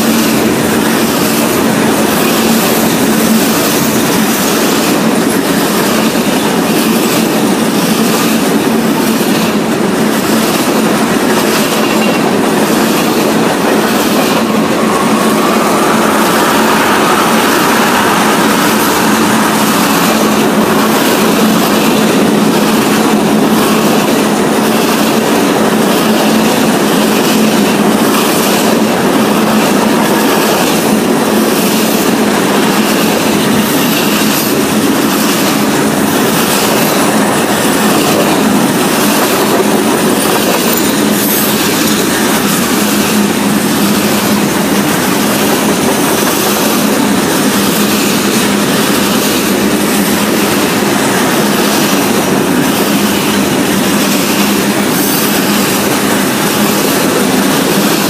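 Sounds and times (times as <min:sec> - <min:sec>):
freight train rumble and clatter: 0:00.0 - 0:58.0.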